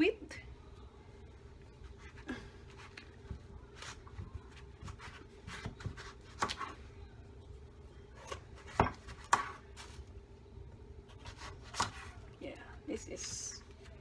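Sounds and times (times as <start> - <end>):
knife cutting papaya: 2.8 - 6.8, 11.1 - 12.2.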